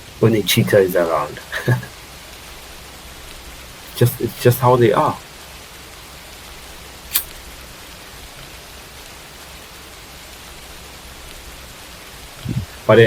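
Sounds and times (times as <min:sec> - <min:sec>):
steady background hiss: 0:00.0 - 0:13.0
sharp click: 0:07.1 - 0:07.4.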